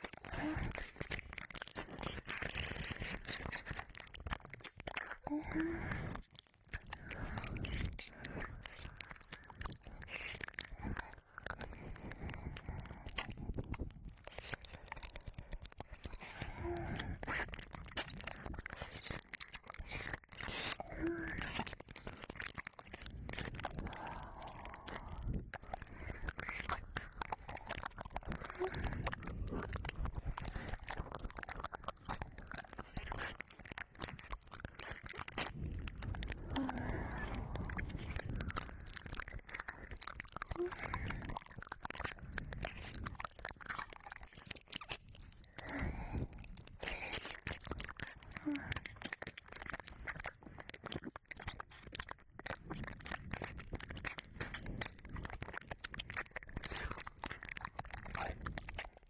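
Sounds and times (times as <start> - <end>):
wet licking and mouth sounds: 0.0 - 59.0
breathing: 0.2 - 4.0, 5.0 - 31.1, 31.7 - 41.4, 45.2 - 50.8, 56.6 - 57.5.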